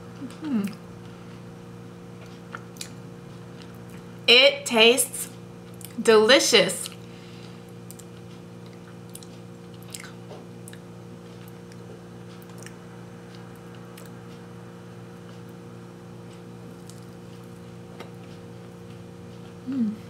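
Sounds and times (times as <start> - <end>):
steady low hum: 0.0 - 20.0
mouth clicks while chewing: 7.8 - 12.8.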